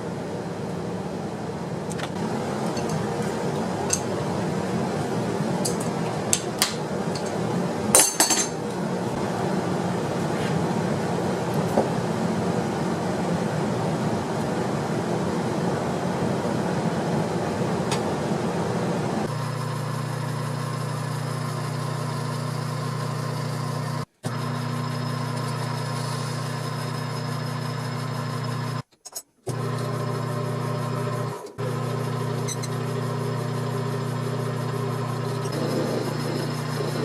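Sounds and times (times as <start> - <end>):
welding machine buzzing hum: 19.3 - 28.9, 29.5 - 37.0.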